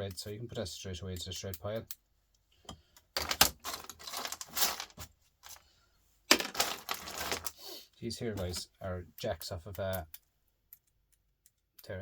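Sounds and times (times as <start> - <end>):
metal parts clattering: 3.2 - 5.1, 6.3 - 7.6.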